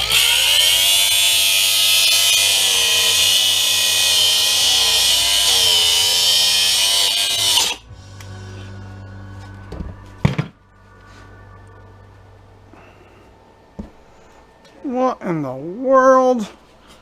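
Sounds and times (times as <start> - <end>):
power saw cutting casing: 0.0 - 7.8.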